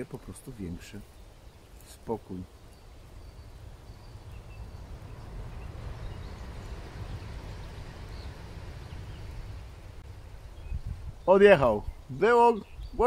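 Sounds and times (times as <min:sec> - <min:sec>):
faint bird chirps: 0:00.0 - 0:13.0
train rumbling past: 0:03.6 - 0:10.4.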